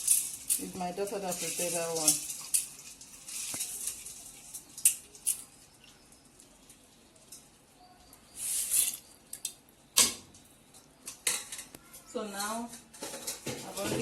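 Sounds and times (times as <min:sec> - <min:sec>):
short hissing rush: 0:08.3 - 0:09.0.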